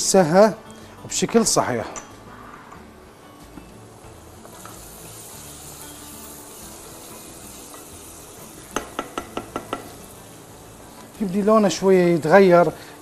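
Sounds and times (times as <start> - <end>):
tomato paste sizzling in a pot: 3.7 - 13.0
wooden spoon clacking on pot: 8.8 - 10.0.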